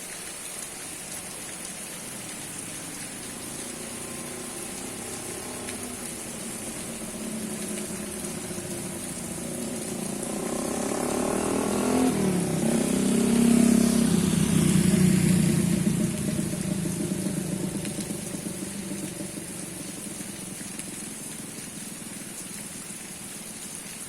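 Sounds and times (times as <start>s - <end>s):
steady rain falling: 0.0s - 24.0s
vehicle engine approaching: 2.3s - 22.2s.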